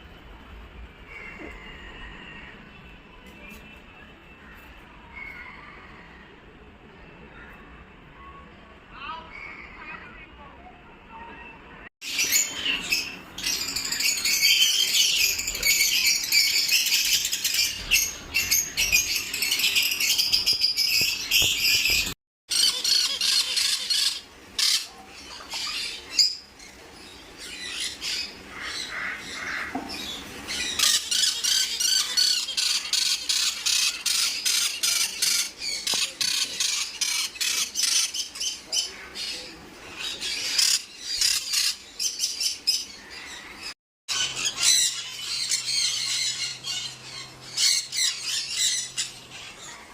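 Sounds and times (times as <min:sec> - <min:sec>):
parrots chattering and squawking: 0:12.1 - 0:49.9.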